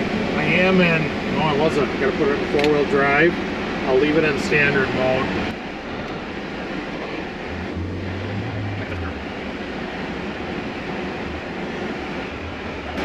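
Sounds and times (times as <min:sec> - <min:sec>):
vehicle engine drone: 0:00.0 - 0:13.0
wind: 0:00.0 - 0:13.0
heater blower: 0:07.0 - 0:13.0.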